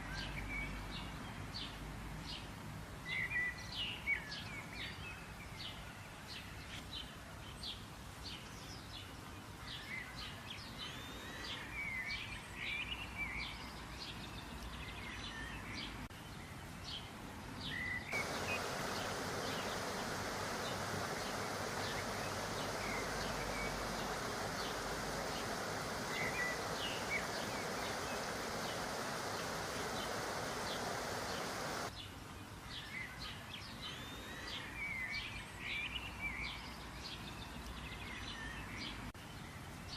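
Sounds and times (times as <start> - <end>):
small birds chirping: 17.6 - 39.0
steady rushing hiss: 18.1 - 31.9.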